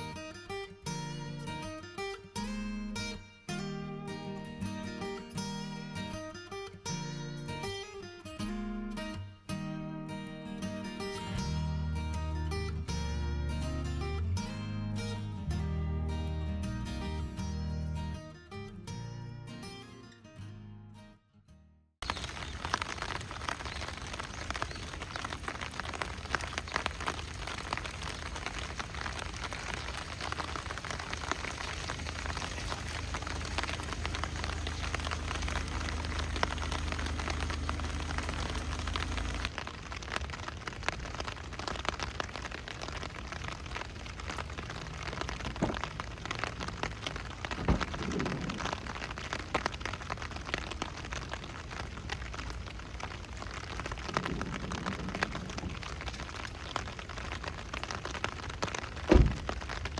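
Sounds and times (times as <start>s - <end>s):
heavy rain hiss: 22.0s - 59.9s.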